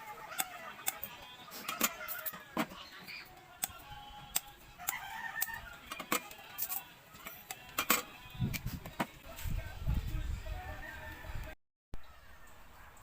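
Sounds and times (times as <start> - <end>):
rooster crowing: 4.8 - 6.0, 10.6 - 11.6.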